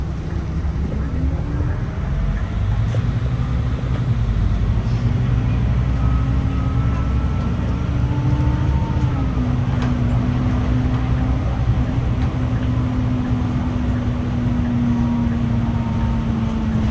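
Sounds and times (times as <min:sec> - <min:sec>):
bus diesel engine rumble: 0:00.0 - 0:16.9
faint engine whine: 0:00.0 - 0:16.9.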